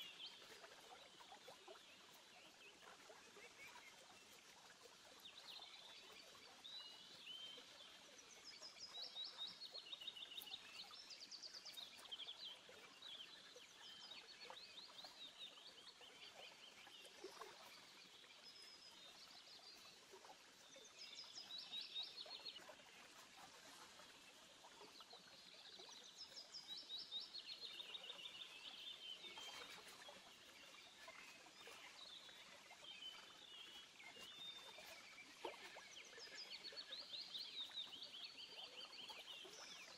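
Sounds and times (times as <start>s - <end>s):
small birds chirping faintly: 0.0s - 39.9s.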